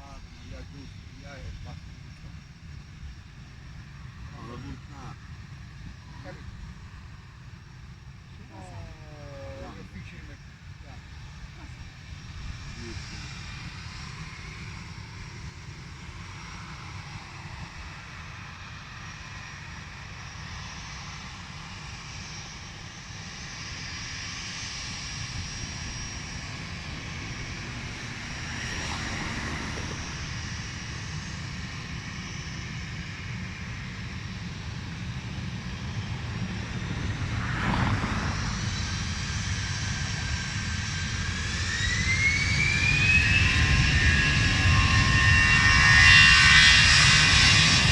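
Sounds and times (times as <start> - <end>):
jet airliner engines: 0.0 - 47.9
engine whine rising in pitch: 24.8 - 33.6, 34.2 - 47.9
low rumble: 35.7 - 41.0.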